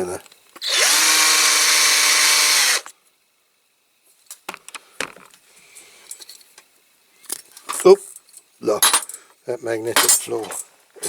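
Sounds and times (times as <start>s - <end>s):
electric drill whining: 0.6s - 2.9s.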